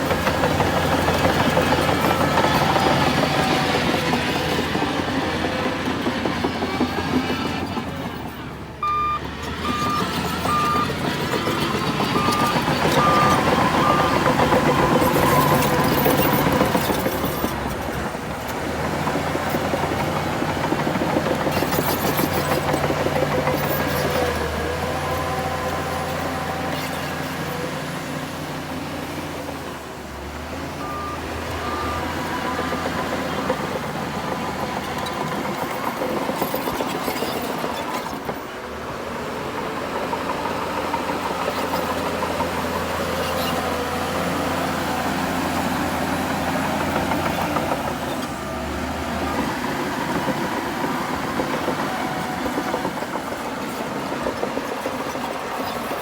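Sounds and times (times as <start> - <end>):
heavy diesel machinery running: 0.0 - 56.0
short beeps: 8.8 - 11.0, 30.8 - 32.0.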